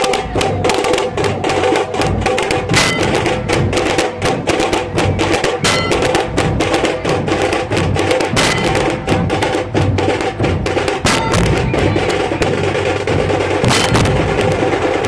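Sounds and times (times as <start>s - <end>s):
dhol drums playing: 0.0s - 15.0s.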